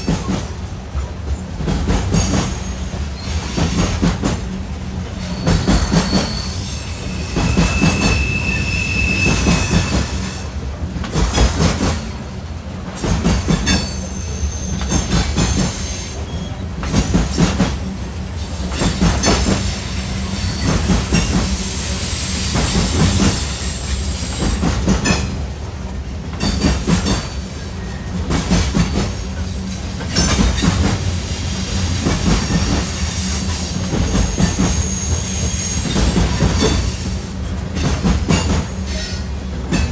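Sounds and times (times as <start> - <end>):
train wheels clattering: 0.0 - 39.9
high-pitched wheel squeals: 5.2 - 10.4, 29.4 - 37.2.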